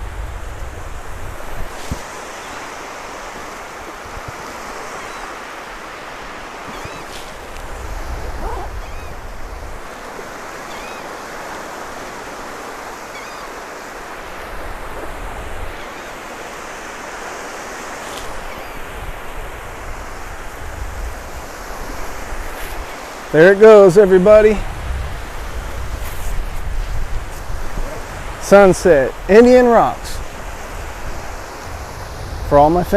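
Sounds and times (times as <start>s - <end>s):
wind buffeting microphone: 0.0s - 5.4s, 6.2s - 10.6s, 18.3s - 22.9s, 23.8s - 32.9s
surf washing onto beach: 0.0s - 32.9s.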